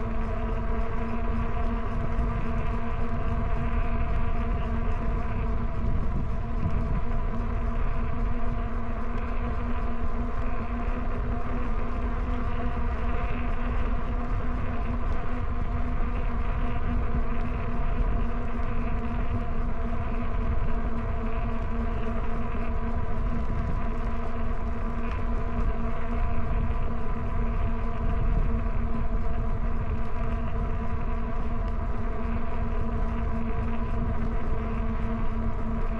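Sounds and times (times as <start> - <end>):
constant motor whine: 0.0 - 35.9
wind and road rumble: 0.1 - 35.9.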